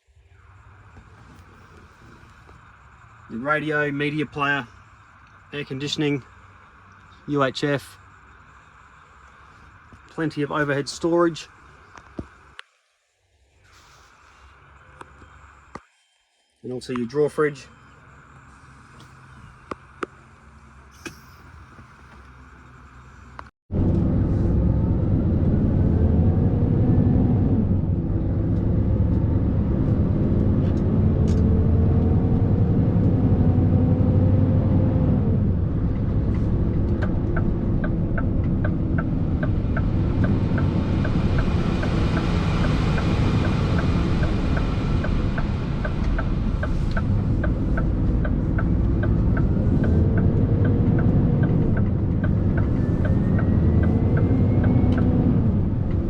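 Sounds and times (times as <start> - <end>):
turn signal relay ticking: 2.5 - 12.6, 35.3 - 56.0
diesel truck engine under load: 18.0 - 56.0.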